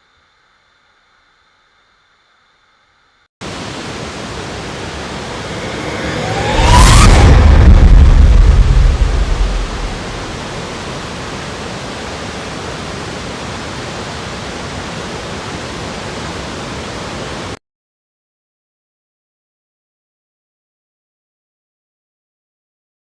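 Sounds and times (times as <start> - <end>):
waterfall rushing: 3.4 - 17.6.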